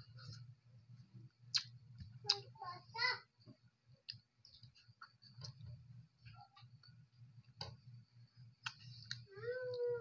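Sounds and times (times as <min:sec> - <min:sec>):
low steady hum: 0:00.0 - 0:10.0
wet chewing and lip smacks: 0:01.5 - 0:02.4.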